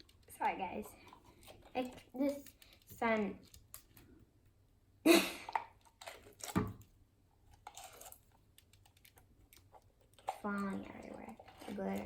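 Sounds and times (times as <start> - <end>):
wet slime squishes: 5.4 - 12.0.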